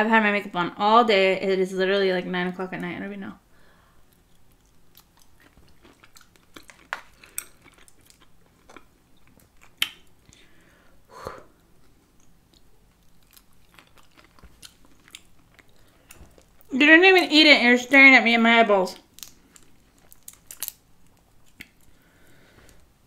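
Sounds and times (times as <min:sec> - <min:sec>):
person chewing wetly: 0:04.1 - 0:10.7, 0:11.5 - 0:16.7, 0:19.0 - 0:22.0.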